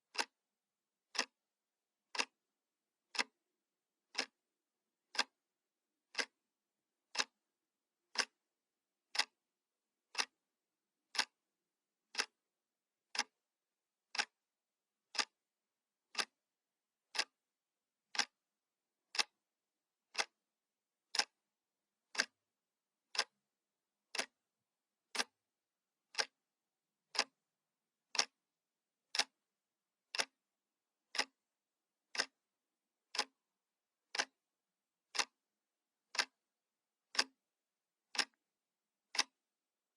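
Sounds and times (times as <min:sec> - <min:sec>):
clock ticking: 0:00.1 - 0:00.4, 0:01.1 - 0:01.4, 0:02.1 - 0:02.4, 0:03.1 - 0:03.4, 0:04.1 - 0:04.4, 0:05.1 - 0:05.4, 0:06.1 - 0:06.4, 0:07.1 - 0:07.4, 0:08.1 - 0:08.4, 0:09.1 - 0:09.4, 0:10.1 - 0:10.4, 0:11.1 - 0:11.4, 0:12.1 - 0:12.4, 0:13.1 - 0:13.4, 0:14.1 - 0:14.4, 0:15.1 - 0:15.4, 0:16.1 - 0:16.4, 0:17.1 - 0:17.4, 0:18.1 - 0:18.4, 0:19.1 - 0:19.4, 0:20.1 - 0:20.4, 0:21.1 - 0:21.4, 0:22.1 - 0:22.4, 0:23.1 - 0:23.4, 0:24.1 - 0:24.4, 0:25.1 - 0:25.4, 0:26.1 - 0:26.4, 0:27.1 - 0:27.4, 0:28.1 - 0:28.4, 0:29.1 - 0:29.4, 0:30.1 - 0:30.4, 0:31.1 - 0:31.4, 0:32.1 - 0:32.4, 0:33.1 - 0:33.4, 0:34.1 - 0:34.4, 0:35.1 - 0:35.4, 0:36.1 - 0:36.4, 0:37.1 - 0:37.4, 0:38.1 - 0:38.4, 0:39.1 - 0:39.4.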